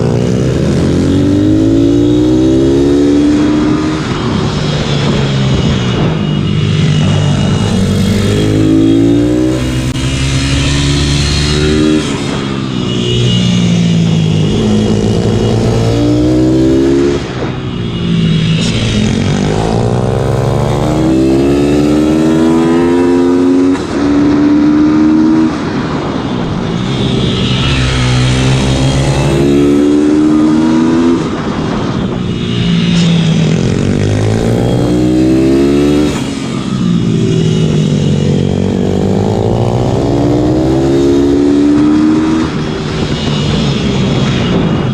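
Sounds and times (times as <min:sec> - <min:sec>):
pit bike engine revving: 0:18.5 - 0:25.5, 0:27.0 - 0:31.5.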